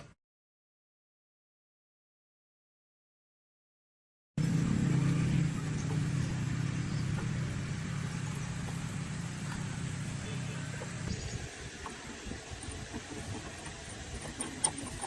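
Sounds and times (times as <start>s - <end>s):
engine running with low hum: 4.4s - 15.0s.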